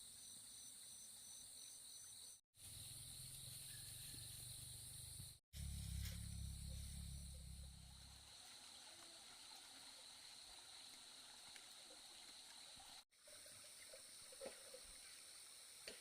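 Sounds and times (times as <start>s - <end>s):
low rumble: 5.6s - 8.3s.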